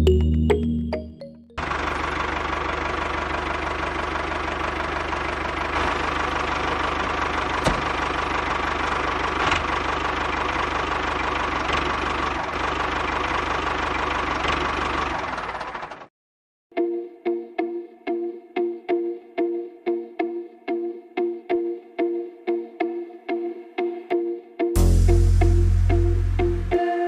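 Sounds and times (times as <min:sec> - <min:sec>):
engine running with fast knock: 0:01.6 - 0:16.1.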